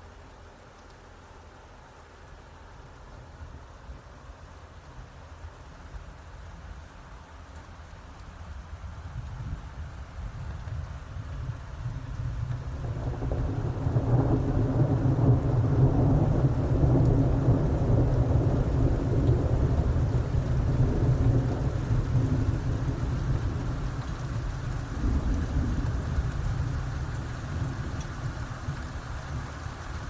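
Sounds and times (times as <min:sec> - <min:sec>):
wind buffeting microphone: 0:02.8 - 0:30.0.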